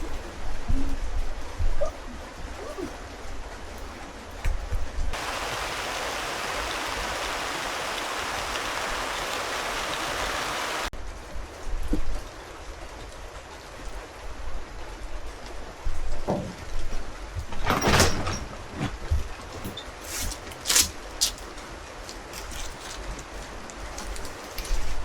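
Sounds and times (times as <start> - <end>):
water rushing: 5.1 - 10.9.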